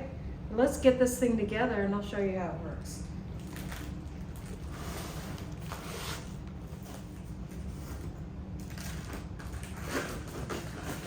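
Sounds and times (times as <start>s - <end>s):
rustling and scraping handling: 3.4s - 11.0s.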